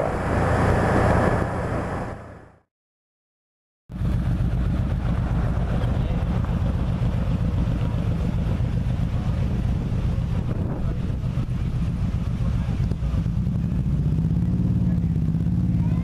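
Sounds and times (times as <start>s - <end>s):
wind noise: 0.0s - 2.6s, 9.1s - 13.2s
motorcycle engine: 3.9s - 16.0s.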